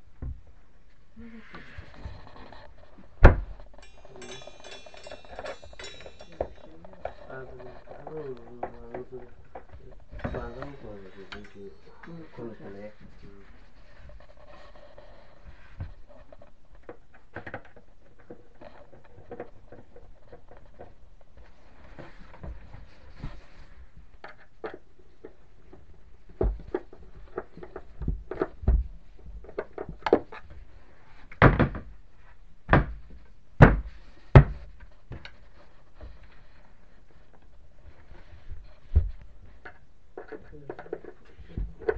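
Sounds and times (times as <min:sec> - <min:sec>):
tools clicking and clunking: 0:03.0 - 0:07.3.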